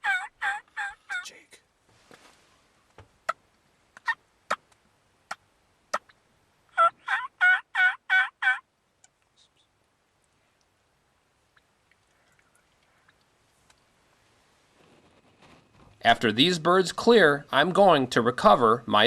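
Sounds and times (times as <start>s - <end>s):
wild turkeys calling: 0.0s - 1.3s, 3.2s - 8.7s, 11.5s - 13.4s.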